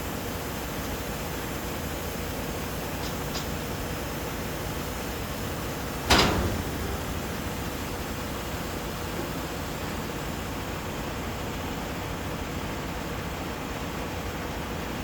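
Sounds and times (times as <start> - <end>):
truck dumper rumble and hiss: 0.1 - 13.2
sharp bang: 6.1 - 9.5.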